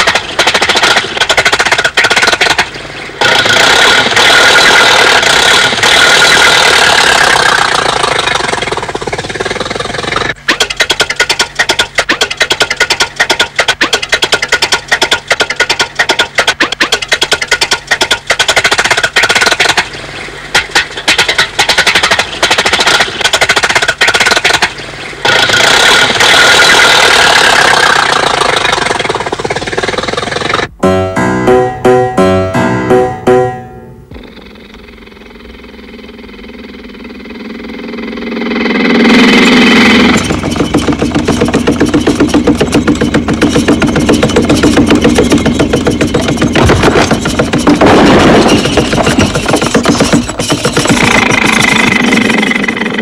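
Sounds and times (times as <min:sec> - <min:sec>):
cartoon car engine putt-putting: 0:00.0 - 0:53.0
low steady hum: 0:30.7 - 0:38.5.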